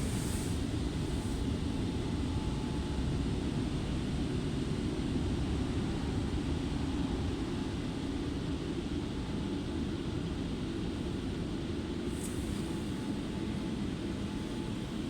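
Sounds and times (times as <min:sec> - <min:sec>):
muffled car wash rumble: 0:00.0 - 0:01.8.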